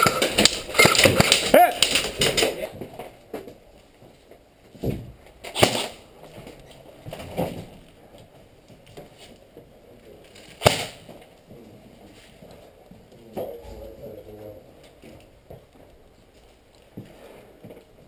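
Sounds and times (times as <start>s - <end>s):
airsoft guns firing: 0.0s - 2.5s, 5.5s - 6.0s, 10.6s - 11.0s.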